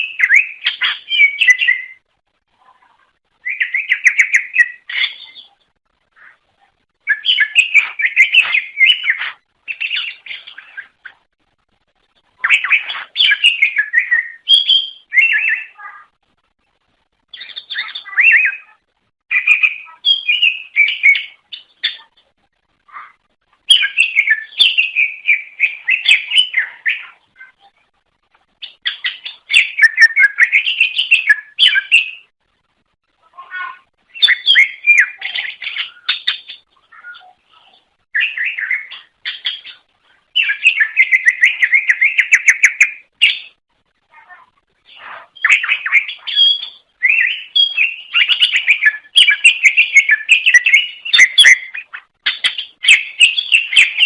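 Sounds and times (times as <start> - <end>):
bird singing chirps and whistles: 0.0 - 2.0, 3.4 - 5.5, 7.0 - 11.0, 12.4 - 15.8, 17.3 - 22.1, 23.7 - 27.2, 28.6 - 32.3, 34.1 - 37.3, 38.2 - 43.6, 44.9 - 54.0.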